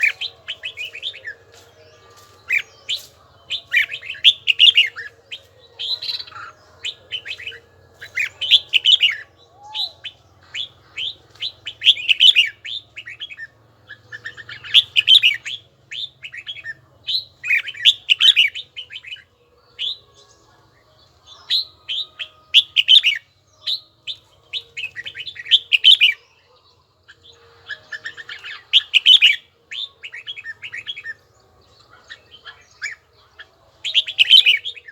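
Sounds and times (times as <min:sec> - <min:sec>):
bird singing whistled phrases: 0:02.5 - 0:16.8, 0:21.5 - 0:26.2, 0:27.8 - 0:31.2, 0:33.8 - 0:34.9.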